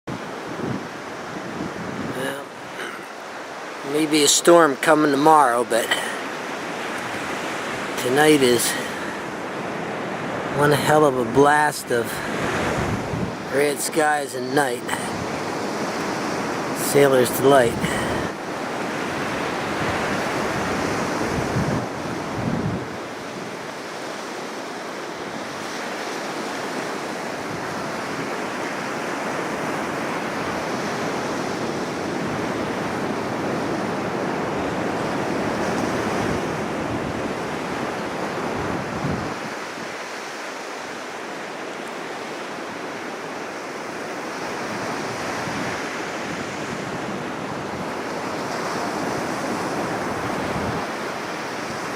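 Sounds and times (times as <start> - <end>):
wind buffeting microphone: 0.1 - 2.8, 11.2 - 13.5, 17.6 - 23.7, 29.2 - 39.6, 45.1 - 51.9
ocean surf on beach: 0.1 - 51.9.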